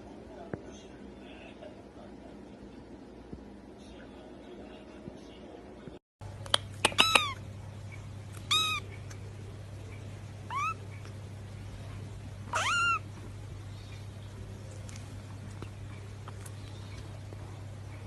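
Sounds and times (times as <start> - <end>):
cat meowing: 7.0 - 7.4, 8.4 - 8.9, 10.5 - 10.8, 12.5 - 13.1.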